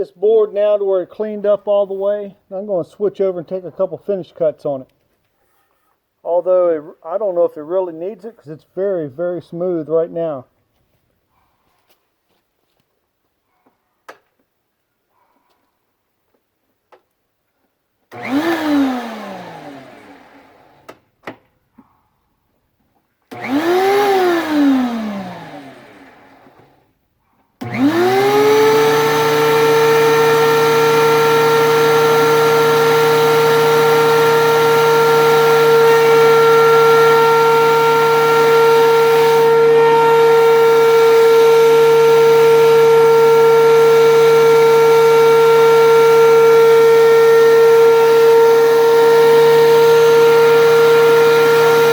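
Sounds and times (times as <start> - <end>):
planer motor whining: 18.1 - 21.0, 23.3 - 26.8, 27.6 - 51.9.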